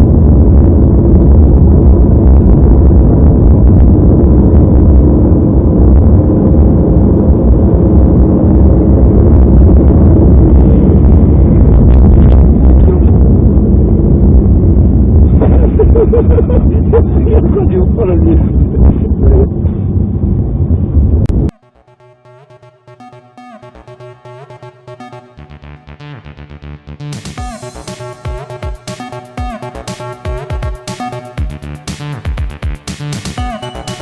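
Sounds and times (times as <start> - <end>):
distorted car road and engine noise: 0.0 - 33.4
person speaking: 17.1 - 19.5.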